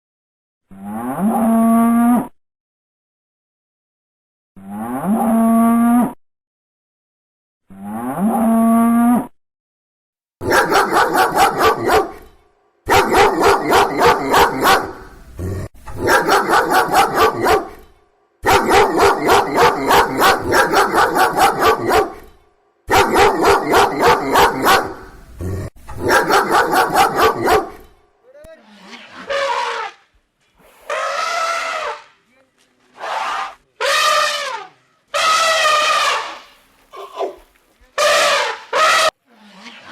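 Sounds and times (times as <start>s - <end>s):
dog barking: 10.4s - 12.3s, 12.9s - 15.2s, 16.0s - 22.3s, 22.9s - 25.2s, 26.0s - 27.9s, 35.2s - 39.2s.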